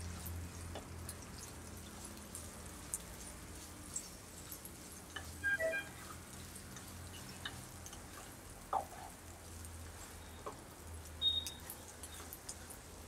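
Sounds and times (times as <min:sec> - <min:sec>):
onions sizzling and crackling in oil: 0:00.0 - 0:13.0
spatula scraping and tapping pan: 0:03.9 - 0:09.2.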